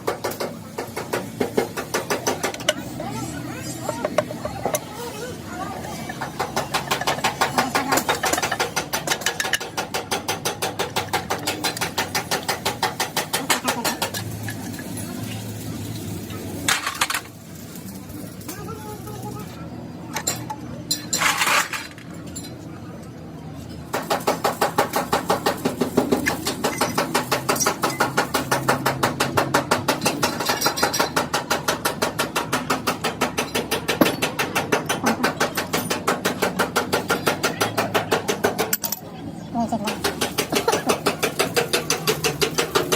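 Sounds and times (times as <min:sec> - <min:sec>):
rapid metal hammering: 0:00.0 - 0:02.9, 0:06.1 - 0:14.8, 0:23.9 - 0:39.0, 0:39.8 - 0:42.9
rapid metal strikes: 0:06.1 - 0:18.6, 0:23.9 - 0:39.0, 0:39.8 - 0:42.9.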